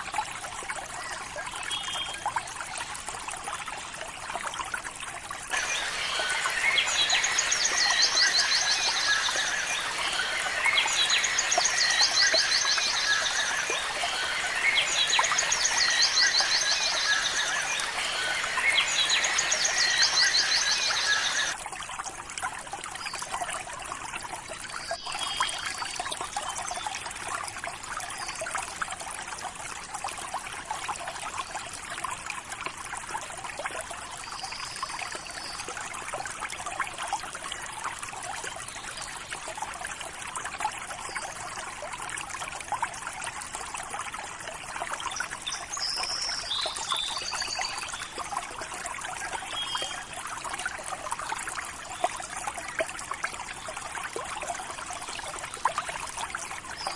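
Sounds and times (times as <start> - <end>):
river water trickling: 0.0 - 56.9
faint bird chirps: 5.5 - 21.6.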